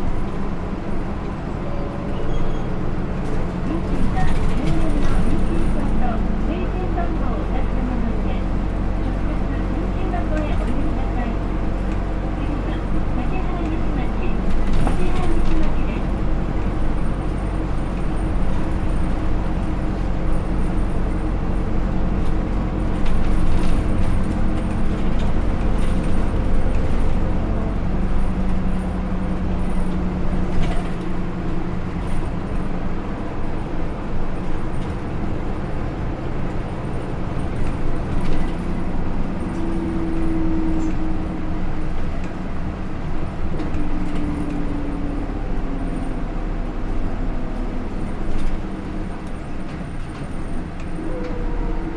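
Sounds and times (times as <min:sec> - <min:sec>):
bus diesel engine running: 0:00.0 - 0:51.9
road noise: 0:00.0 - 0:51.9.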